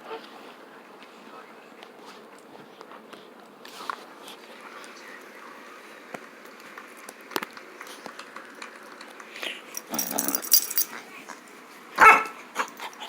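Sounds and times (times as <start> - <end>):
puppy barking: 12.0 - 13.0
puppy clicks and scuffling: 12.6 - 13.0.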